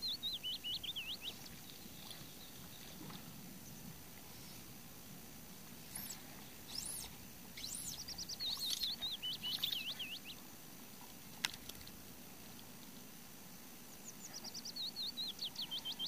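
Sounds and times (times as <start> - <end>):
songbird singing: 0.0 - 16.0.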